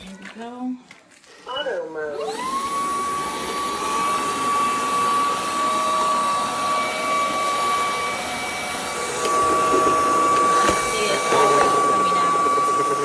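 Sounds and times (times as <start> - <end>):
floor vacuum running: 1.8 - 13.0.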